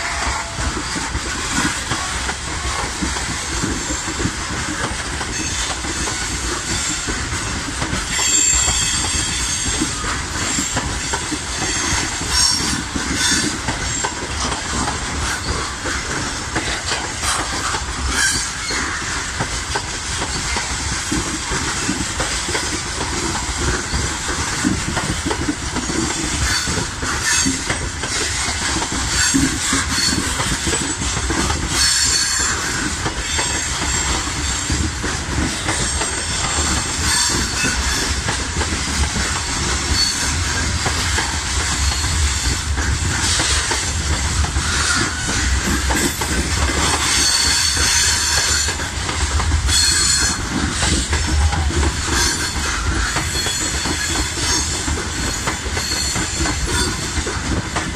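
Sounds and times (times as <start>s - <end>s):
train wheels rumbling and clattering: 0.0s - 57.9s
high wheel squeals: 8.1s - 14.2s, 35.8s - 38.1s, 39.6s - 40.7s, 47.0s - 48.7s, 49.7s - 57.2s.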